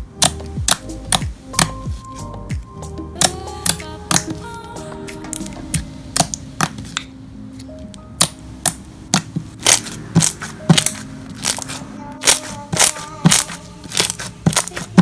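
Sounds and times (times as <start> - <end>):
soft background music: 0.0 - 15.0
slime popping and crackling: 0.2 - 1.8, 5.3 - 7.1, 8.2 - 15.0.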